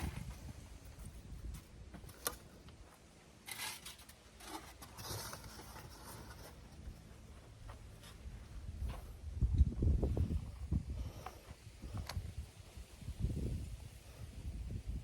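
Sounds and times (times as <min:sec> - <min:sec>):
scraping rustling handling noises: 0:03.4 - 0:07.0.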